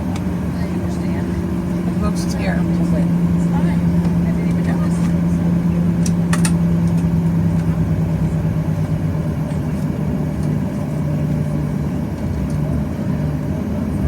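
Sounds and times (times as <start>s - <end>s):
airplane cabin engine drone: 0.0s - 14.0s.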